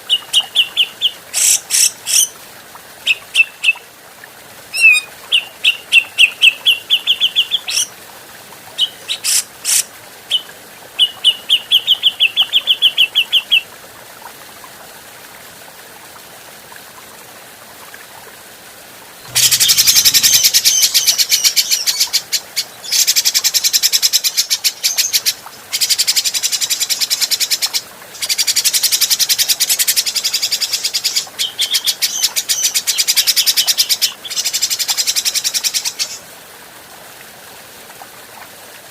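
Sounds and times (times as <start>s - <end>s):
bird calling clear repeated notes: 4.7s - 7.9s, 19.3s - 22.1s
bird harsh rapid chatter: 19.3s - 20.9s.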